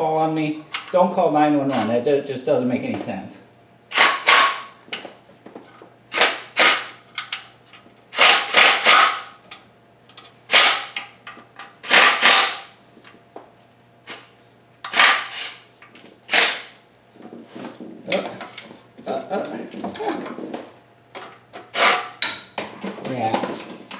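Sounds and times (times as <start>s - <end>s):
impact wrench bursts: 3.9s - 4.7s, 6.1s - 7.0s, 8.2s - 9.3s, 10.5s - 11.0s, 11.8s - 12.7s, 16.3s - 16.7s.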